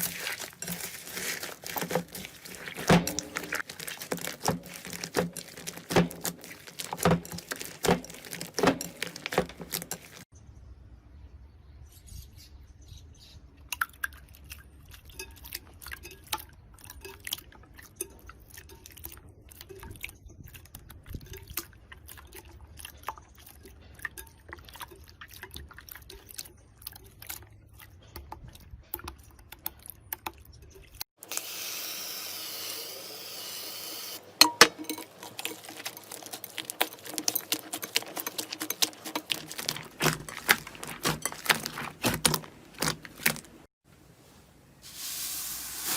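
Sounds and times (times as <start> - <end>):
slime squishing with wet pops: 0.0 - 10.3, 35.2 - 43.7.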